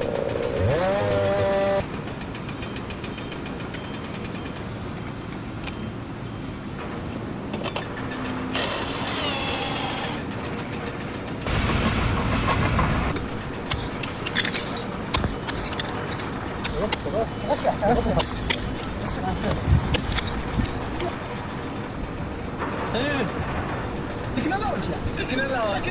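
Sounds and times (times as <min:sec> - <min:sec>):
machinery running: 0:00.0 - 0:25.9
clanks and clicks: 0:06.8 - 0:25.9.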